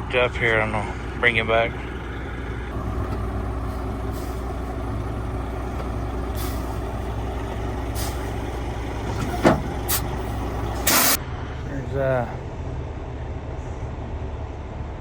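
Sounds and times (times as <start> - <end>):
truck diesel engine idling: 0.0 - 13.4
short air hisses: 9.3 - 11.2.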